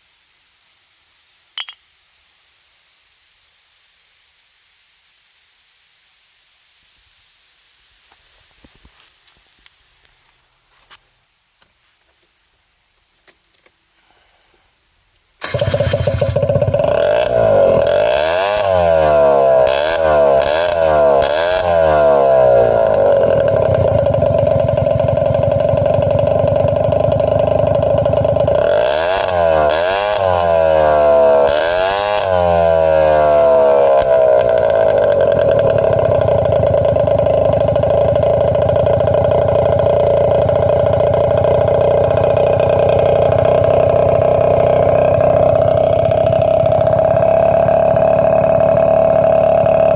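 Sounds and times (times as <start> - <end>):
scooter engine revving and idling: 15.4 - 49.9.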